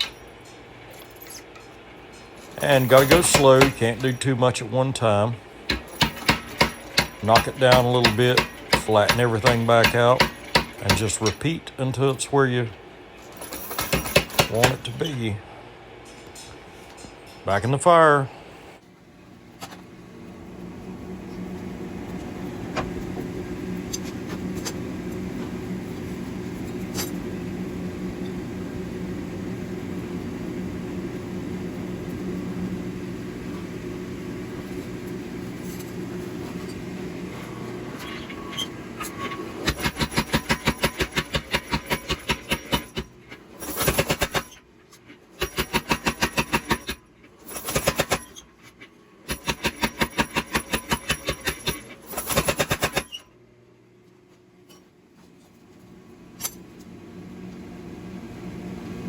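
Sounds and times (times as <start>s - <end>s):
machine hum: 0.0s - 54.4s
power hammer striking hot steel: 2.7s - 4.2s, 5.7s - 11.6s, 13.8s - 15.0s, 39.0s - 44.6s, 45.4s - 48.4s, 49.3s - 53.2s.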